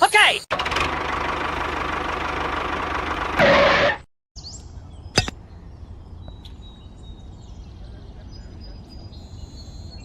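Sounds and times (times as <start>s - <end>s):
bird chirps: 4.4s - 10.0s.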